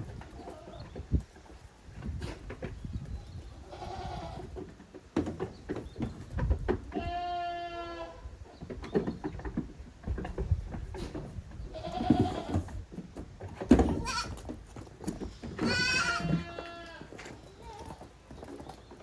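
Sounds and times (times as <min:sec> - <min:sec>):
goat kids bleating: 0:03.6 - 0:04.6, 0:06.9 - 0:08.3, 0:11.6 - 0:12.7, 0:13.7 - 0:14.5, 0:15.3 - 0:18.1.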